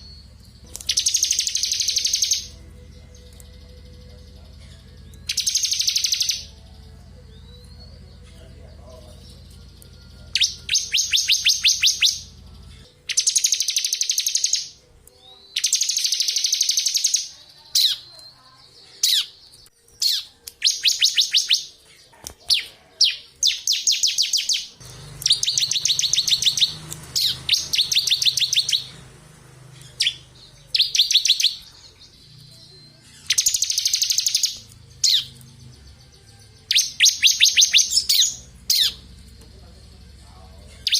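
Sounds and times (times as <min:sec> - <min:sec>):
single bird chirps: 0:00.0 - 0:04.1, 0:29.8 - 0:35.5
bird singing fast high trills: 0:00.0 - 0:18.2, 0:20.0 - 0:21.8, 0:23.0 - 0:35.8, 0:36.6 - 0:39.2
faint low hum: 0:00.0 - 0:18.7, 0:24.4 - 0:40.9.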